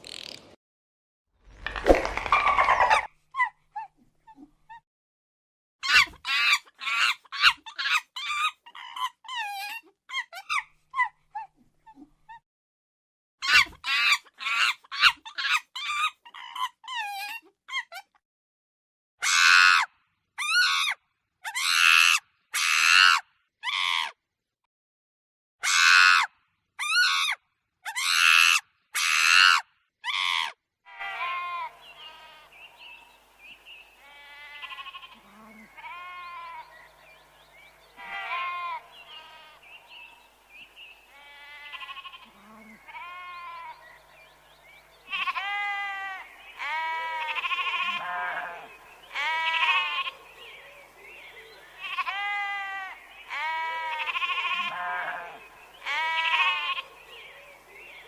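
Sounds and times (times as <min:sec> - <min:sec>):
shrill cries: 0:25.6 - 0:32.6, 0:34.0 - 0:37.2, 0:37.9 - 0:40.4, 0:41.1 - 0:44.0, 0:45.0 - 0:57.0
goats or sheep bleating: 0:30.9 - 0:33.0, 0:33.7 - 0:37.3, 0:37.9 - 0:44.3, 0:45.0 - 0:58.0.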